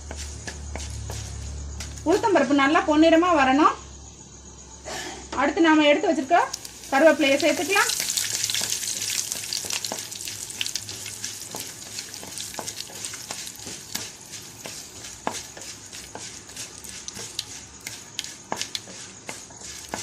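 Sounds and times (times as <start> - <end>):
spices sizzling in hot oil: 6.1 - 20.0.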